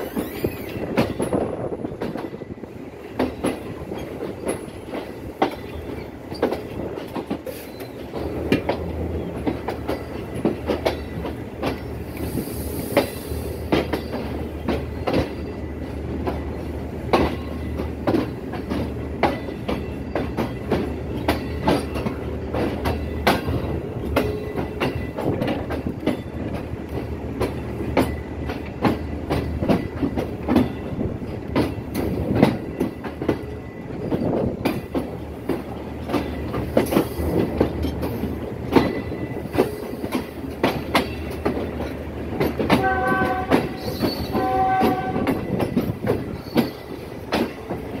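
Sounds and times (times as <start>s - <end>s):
train running rumble: 0.0s - 48.0s
train wheels clattering over rail joints: 0.0s - 48.0s
train horn blasts: 42.7s - 45.5s.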